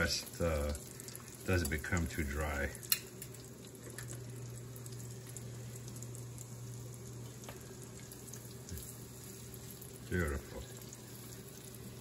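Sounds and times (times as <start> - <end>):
chicken sizzling in a pan: 0.0 - 12.0
low steady hum: 0.0 - 12.0.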